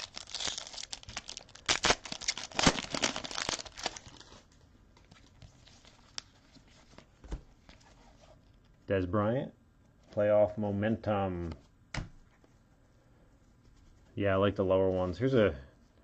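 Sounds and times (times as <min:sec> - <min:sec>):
plastic wrapper tearing and crinkling: 0:00.0 - 0:04.5.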